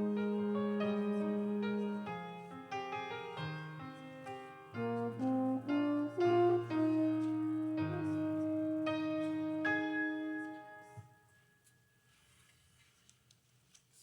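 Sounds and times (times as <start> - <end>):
slow keyboard prelude: 0.0 - 11.0.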